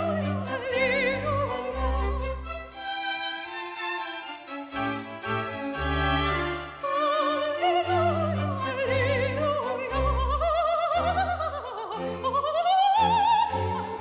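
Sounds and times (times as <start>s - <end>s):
soprano singing with vibrato: 0.0s - 2.4s, 6.4s - 14.0s
orchestra with strings: 0.0s - 14.0s.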